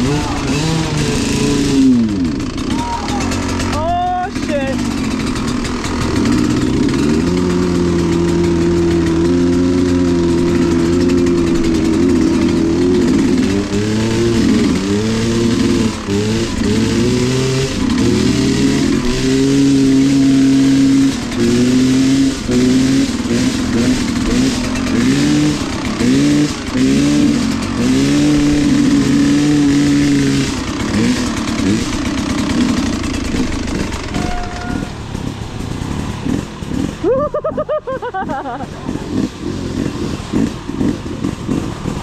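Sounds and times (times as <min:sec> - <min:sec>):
off-road vehicle engine revving: 0:00.0 - 0:42.0.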